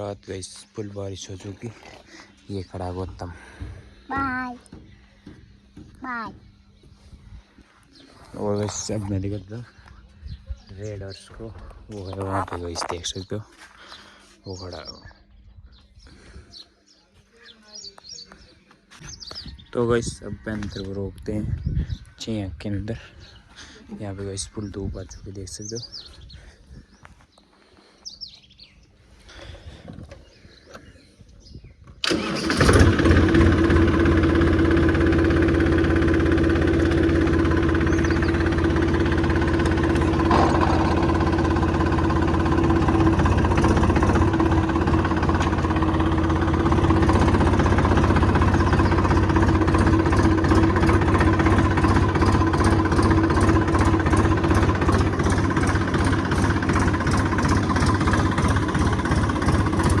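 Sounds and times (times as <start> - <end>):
tractor engine starting and idling: 31.9 - 60.0.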